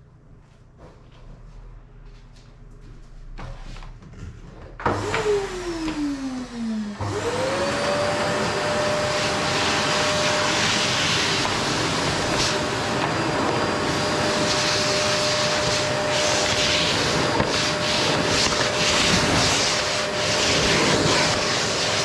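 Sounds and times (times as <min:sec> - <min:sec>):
vacuum cleaner motor whine: 0:04.8 - 0:22.0.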